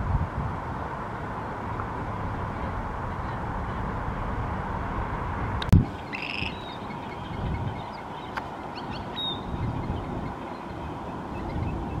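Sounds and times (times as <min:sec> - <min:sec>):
wind on microphone: 0:00.0 - 0:12.0
harsh bird call: 0:05.9 - 0:12.0
high bird chirps: 0:05.9 - 0:12.0.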